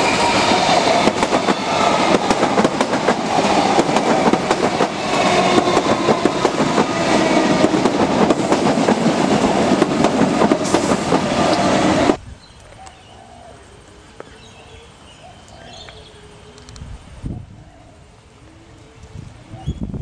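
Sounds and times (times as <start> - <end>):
train wheels clickety-clack: 0.0 - 12.2.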